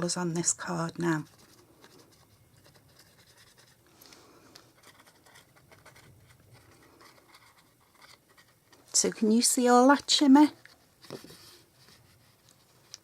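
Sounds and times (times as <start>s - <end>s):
brush pen scratching on paper: 1.1s - 3.8s, 4.7s - 8.7s.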